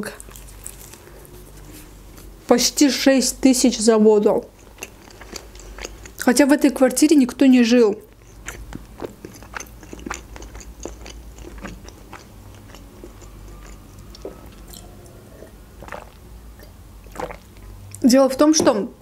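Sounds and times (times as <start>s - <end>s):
chewing with mouth clicks and smacks: 0.0s - 2.3s, 4.4s - 18.0s
person swallowing: 14.1s - 17.6s.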